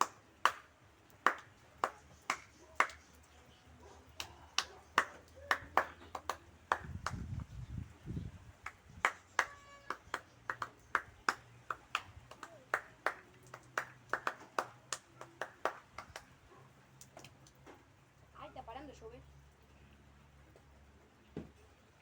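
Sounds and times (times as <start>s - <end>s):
raindrops tapping: 0.0s - 3.4s, 4.1s - 7.5s, 8.4s - 18.3s.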